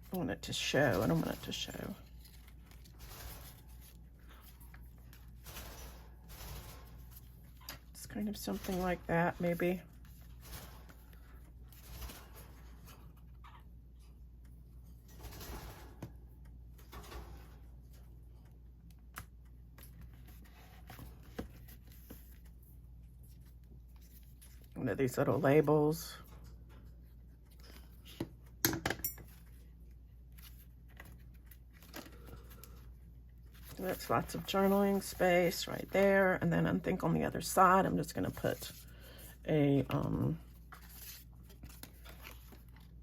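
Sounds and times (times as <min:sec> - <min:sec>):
paper rustling: 0:00.0 - 0:08.0, 0:19.2 - 0:24.8, 0:29.3 - 0:36.4, 0:38.2 - 0:43.0
faint handling sounds: 0:37.6 - 0:43.0.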